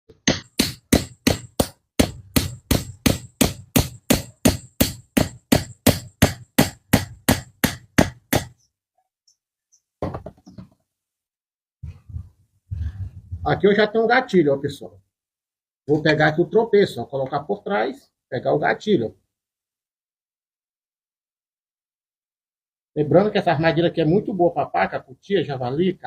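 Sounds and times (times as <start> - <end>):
hammer blows: 0.1 - 8.5.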